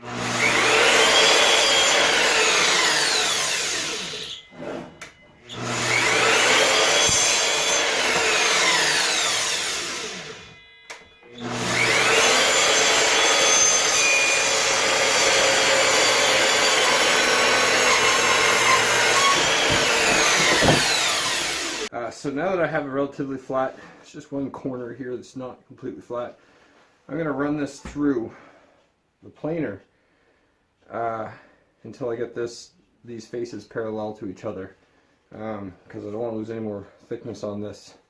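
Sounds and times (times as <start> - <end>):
power tool cutting wood: 0.0 - 21.9.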